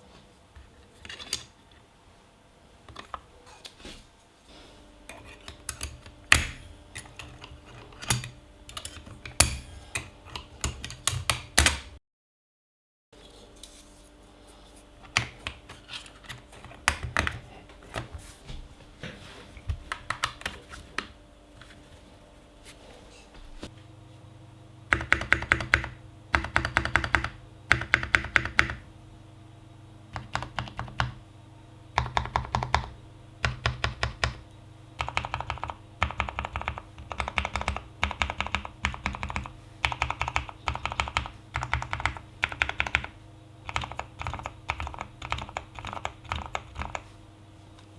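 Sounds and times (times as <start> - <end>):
mechanical keyboard typing: 5.5 - 12.0, 19.9 - 20.6, 24.9 - 28.8, 30.2 - 31.2, 32.0 - 34.4, 35.0 - 47.0.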